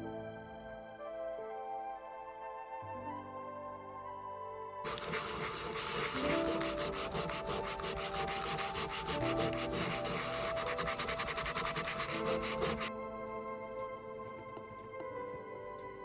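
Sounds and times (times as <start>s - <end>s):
soft background music: 0.0s - 16.0s
fast scrubbing on a surface: 4.9s - 12.9s.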